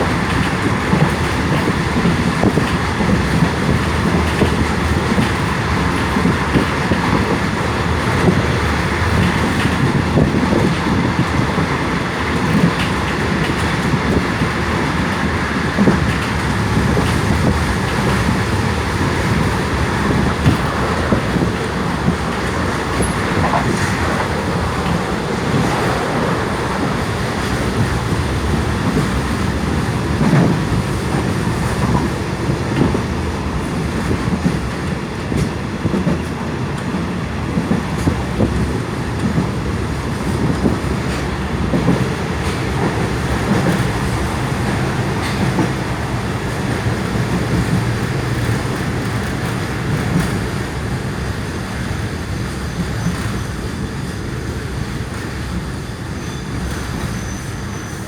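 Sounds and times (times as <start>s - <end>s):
train wheel clicks: 0.0s - 57.9s
train rumbling along tracks: 0.0s - 58.0s.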